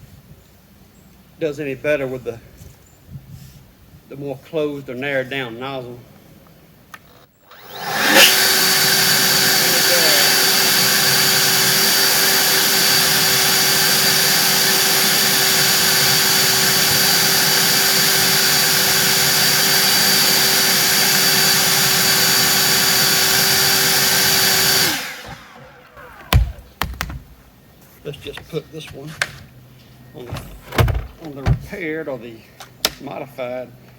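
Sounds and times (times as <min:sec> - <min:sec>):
leaf blower running: 0:07.2 - 0:26.9.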